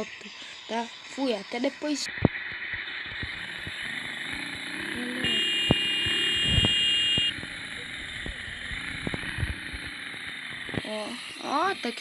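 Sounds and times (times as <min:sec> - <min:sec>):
motorcycle engine: 0:02.0 - 0:12.0
high steady beep: 0:05.2 - 0:07.3
wind noise: 0:05.7 - 0:06.9.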